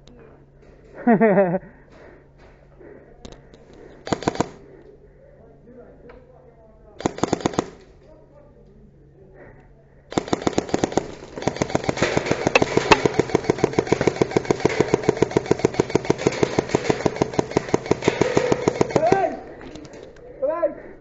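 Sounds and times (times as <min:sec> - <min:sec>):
airsoft gun firing full-auto: 0:04.0 - 0:04.6, 0:07.0 - 0:07.9, 0:10.1 - 0:19.5.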